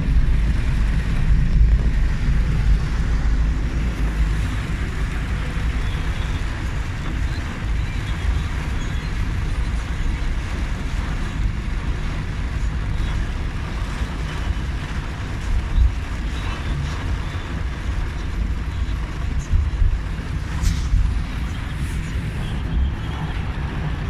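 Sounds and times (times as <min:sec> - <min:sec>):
car driving rumble: 0:00.0 - 0:24.0
wind buffeting microphone: 0:00.0 - 0:24.0.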